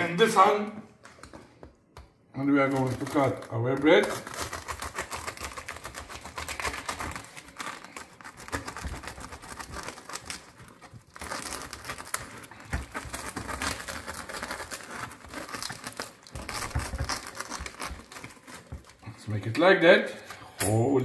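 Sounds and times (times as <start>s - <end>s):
bread knife sawing through crust: 3.1s - 18.8s.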